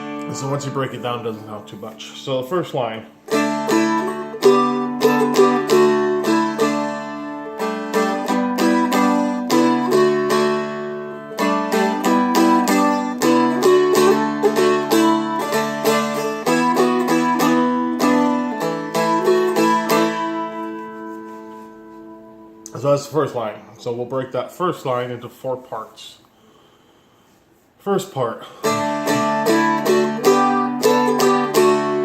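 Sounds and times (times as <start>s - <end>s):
dulcimer flatpicked melody: 0.0s - 1.8s, 3.2s - 22.6s, 28.6s - 32.0s.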